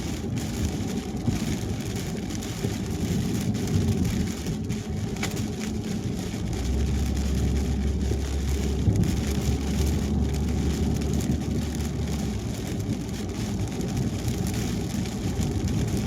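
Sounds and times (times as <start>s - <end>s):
rain pattering on car: 0.0s - 16.0s
tyre and road noise: 0.0s - 16.0s.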